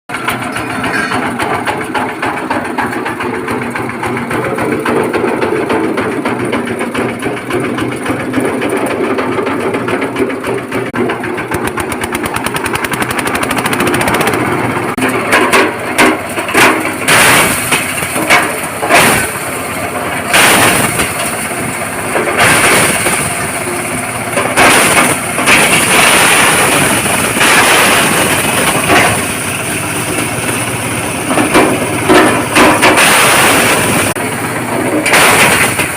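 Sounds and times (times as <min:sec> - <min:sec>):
stone crushing machine running: 0:00.1 - 0:35.9
stone crunching and clattering: 0:20.2 - 0:21.5, 0:24.4 - 0:29.4, 0:31.3 - 0:34.2, 0:35.0 - 0:35.9.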